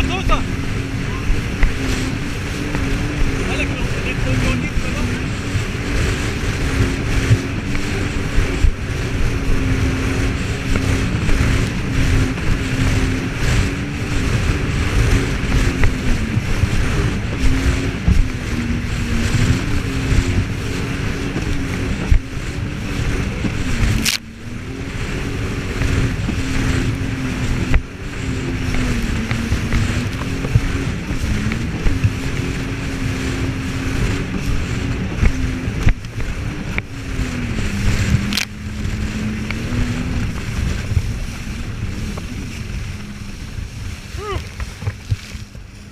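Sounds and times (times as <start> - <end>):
jet ski engine running: 0.0 - 45.9
steady rushing noise: 0.0 - 45.9.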